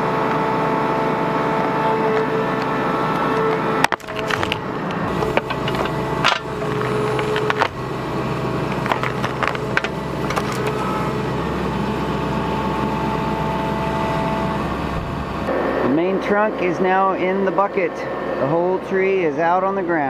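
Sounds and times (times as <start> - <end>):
mini excavator engine under load: 0.0 - 15.5
wood cracking: 3.9 - 11.3.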